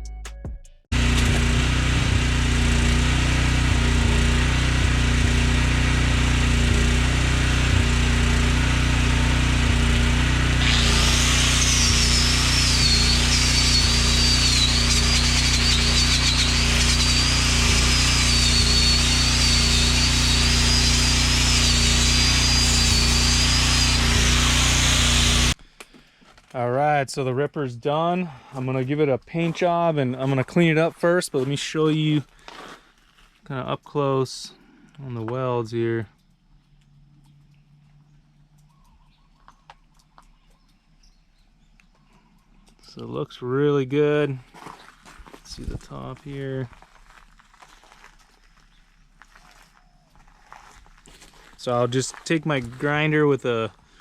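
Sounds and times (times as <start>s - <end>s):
power tool humming: 0.9s - 25.6s.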